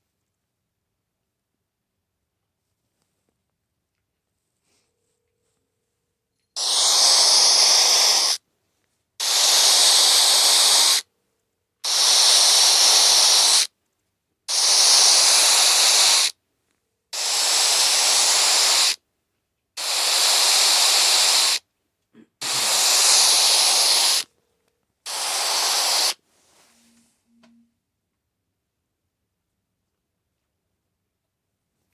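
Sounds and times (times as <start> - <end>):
static hiss bursts: 6.6 - 8.4, 9.2 - 11.0, 11.9 - 13.7, 14.5 - 16.4, 17.2 - 19.0, 19.8 - 21.6, 22.4 - 24.3, 25.1 - 26.2.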